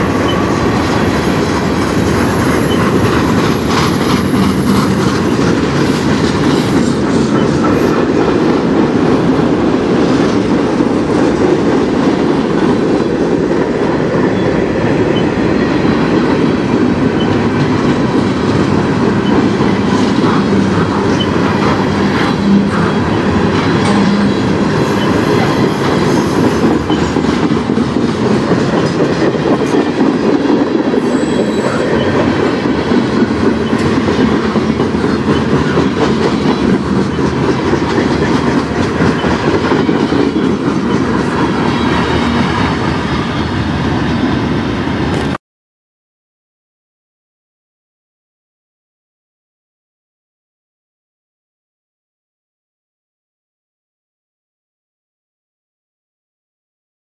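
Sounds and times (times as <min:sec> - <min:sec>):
rail joint clickety-clack: 0:00.0 - 0:45.4
steel wheels rumbling on rails: 0:00.0 - 0:45.4
faint high wheel squeal: 0:31.0 - 0:32.2.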